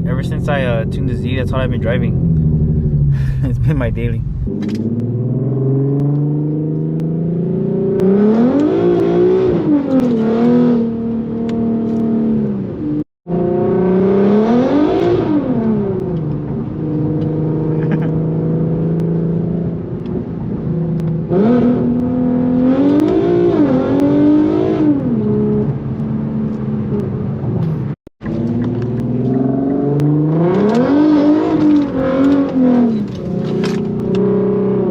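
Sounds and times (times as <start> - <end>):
car engine revving hard: 4.5 - 19.9, 21.2 - 25.7, 28.3 - 34.9.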